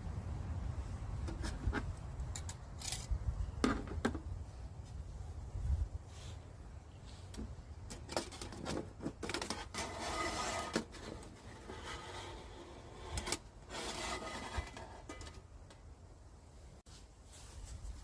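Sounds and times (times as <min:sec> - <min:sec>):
rubbing and scraping handling: 0:01.1 - 0:04.0, 0:06.1 - 0:15.9.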